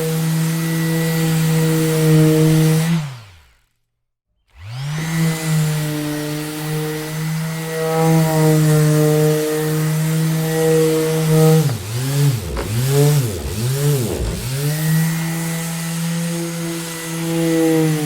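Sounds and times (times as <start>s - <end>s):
electric sander motor humming: 4.6s - 18.0s.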